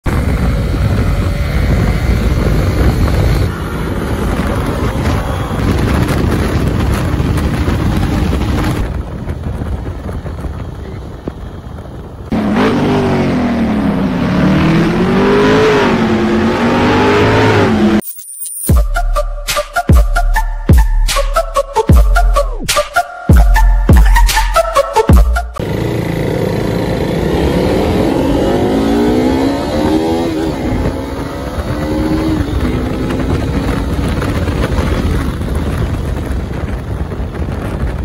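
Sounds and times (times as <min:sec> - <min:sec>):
wind rush on microphone: 0:00.0 - 0:17.9, 0:26.8 - 0:38.0
motorcycle engine revving: 0:00.1 - 0:18.0, 0:25.6 - 0:38.0.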